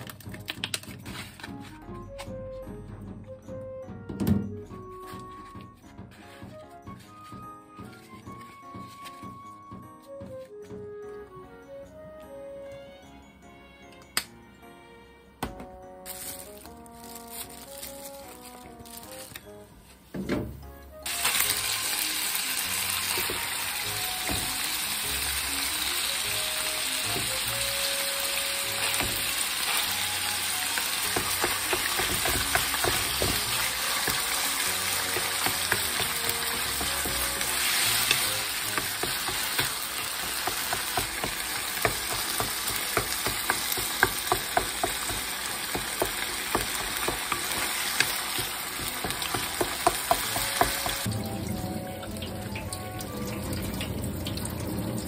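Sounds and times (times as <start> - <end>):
wooden spatula scraping a pan: 4.9 - 7.3
meat sizzling in a frying pan: 21.1 - 51.1.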